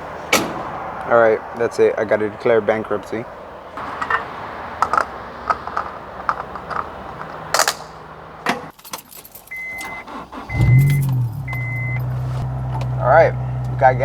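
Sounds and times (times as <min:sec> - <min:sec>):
outside noise: 0:00.0 - 0:14.0
keys jangling: 0:08.7 - 0:10.0, 0:10.7 - 0:12.4
high steady beep: 0:09.6 - 0:12.1.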